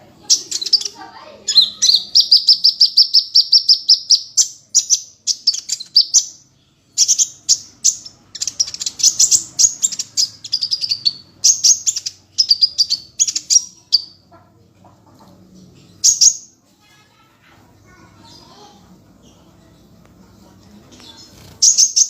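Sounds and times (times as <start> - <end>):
songbird trilling: 0.2 - 6.4, 7.0 - 14.2
bird chattering phrases: 0.2 - 16.6, 21.2 - 22.0.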